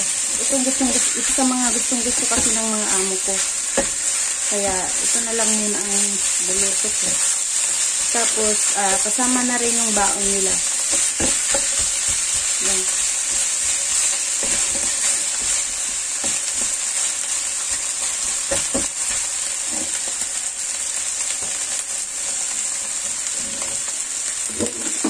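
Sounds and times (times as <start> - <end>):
meat sizzling in a wok: 0.0 - 25.0
spatula scraping and tapping pan: 0.7 - 7.4, 8.2 - 16.8, 17.7 - 20.3.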